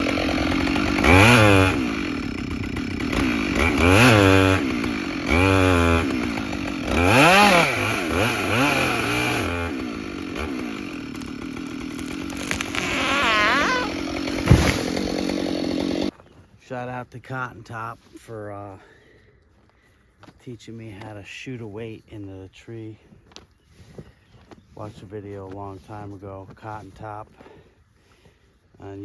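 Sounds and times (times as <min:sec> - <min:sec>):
chainsaw revving and idling: 0:00.0 - 0:16.2.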